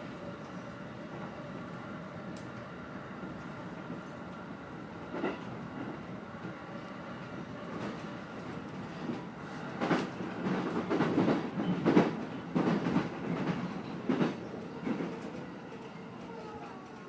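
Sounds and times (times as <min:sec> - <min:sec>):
train rumble: 0:00.0 - 0:17.0
train wheels clacking over rail joints: 0:09.8 - 0:15.4.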